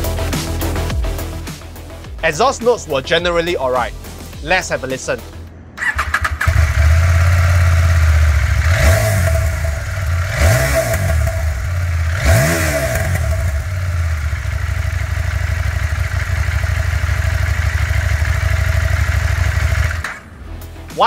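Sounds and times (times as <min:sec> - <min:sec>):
motorcycle engine idling and revving: 0:05.8 - 0:20.9.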